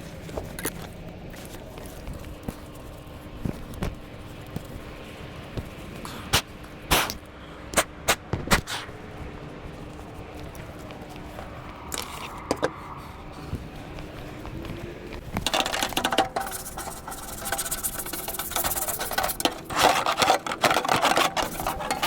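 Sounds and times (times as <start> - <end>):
hand scrubbing metal: 10.4 - 22.0.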